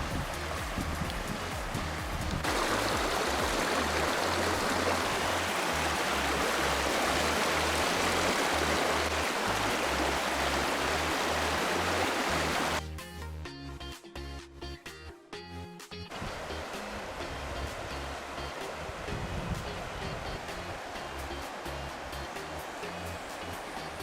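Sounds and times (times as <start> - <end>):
rushing water-like noise: 0.0 - 12.8, 16.1 - 24.0
music with slow bass line: 0.0 - 24.0.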